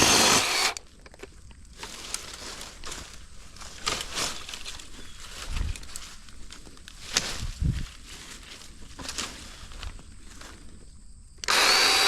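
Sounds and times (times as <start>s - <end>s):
hand saw rasping through branch: 0.0s - 0.8s, 11.5s - 12.0s.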